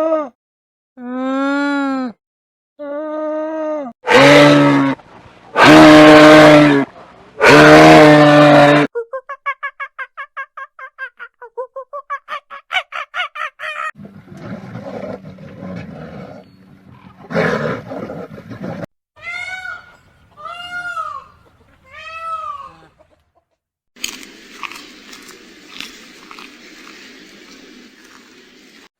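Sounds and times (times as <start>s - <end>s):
rough noisy animal call: 4.0s - 8.9s.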